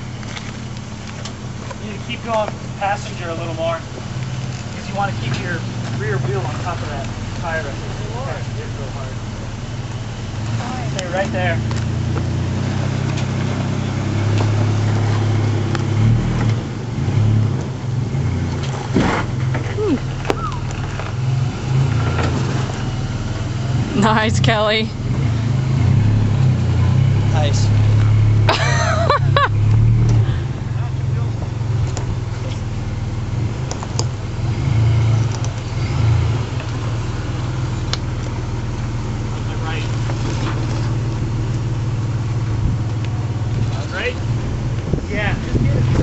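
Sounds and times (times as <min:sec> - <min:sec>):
pickup engine running: 0:00.0 - 0:46.0
light clicks: 0:35.3 - 0:35.6.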